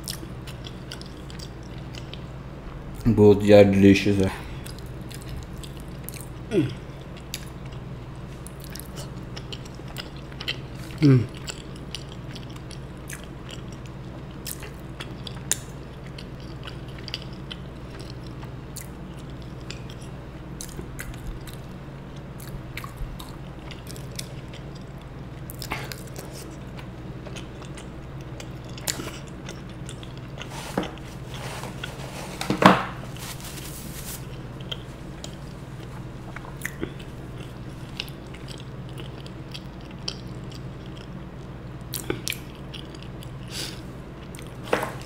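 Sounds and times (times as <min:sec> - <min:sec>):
tissue wiped across mouth: 0:33.1 - 0:34.3.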